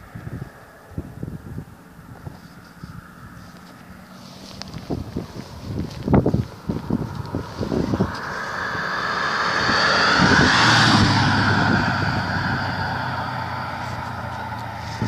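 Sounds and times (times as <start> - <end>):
wind buffeting microphone: 0.0 - 15.0
car driving past: 6.6 - 15.0.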